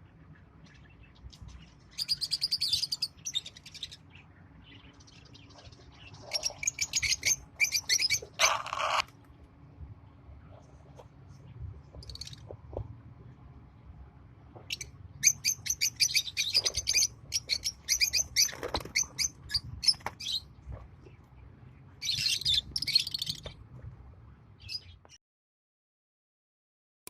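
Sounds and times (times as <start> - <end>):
lovebirds chirping: 0.0 - 9.2, 10.6 - 12.8, 14.6 - 23.7
low background hum: 0.0 - 25.2
harsh bird squawks: 6.2 - 9.1.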